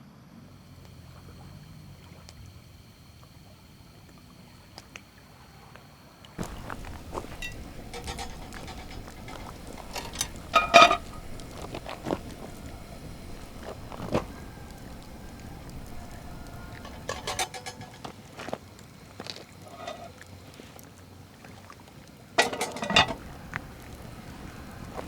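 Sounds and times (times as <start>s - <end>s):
metal clank: 6.4s - 18.2s, 19.7s - 20.1s, 22.4s - 23.2s.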